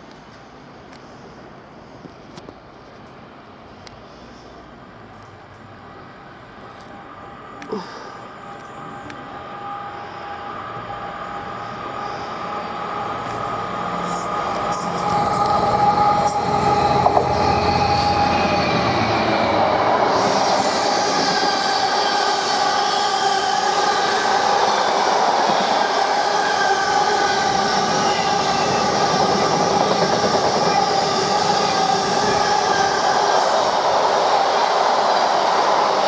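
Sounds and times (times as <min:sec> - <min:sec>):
wheels squealing on rails: 0:05.9 - 0:36.0
locomotive rumble: 0:06.5 - 0:35.4
train wagons rushing past: 0:08.2 - 0:36.0.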